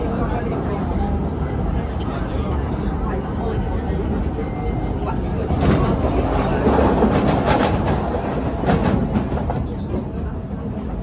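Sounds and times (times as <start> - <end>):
train rumbling on track: 0.0 - 11.0
wheels clacking over rail joints: 5.1 - 11.0.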